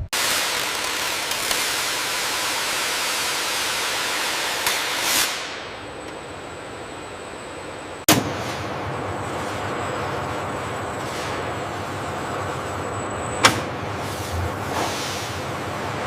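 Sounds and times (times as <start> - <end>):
faint high whine: 0.8 - 16.0
loud sharp bangs: 8.1 - 8.9.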